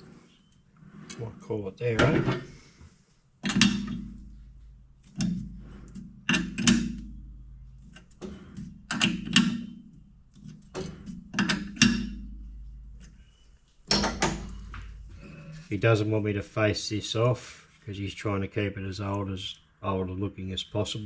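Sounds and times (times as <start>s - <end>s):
metal knocks and clanks: 1.9s - 2.6s, 3.4s - 15.7s.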